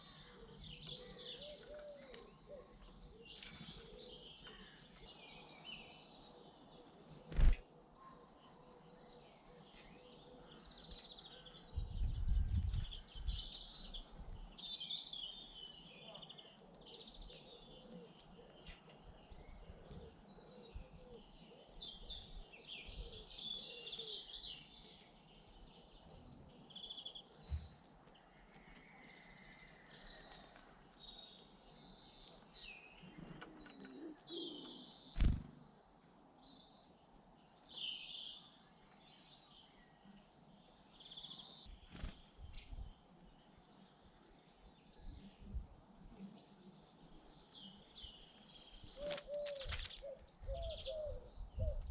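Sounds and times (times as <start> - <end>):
small birds chirping: 0.0 - 51.9.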